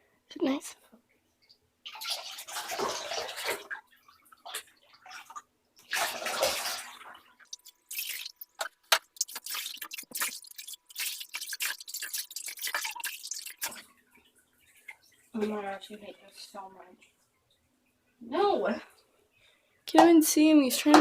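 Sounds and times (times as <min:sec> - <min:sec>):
water splashes and drips: 0:01.4 - 0:15.9
water poured from cup: 0:04.4 - 0:13.9.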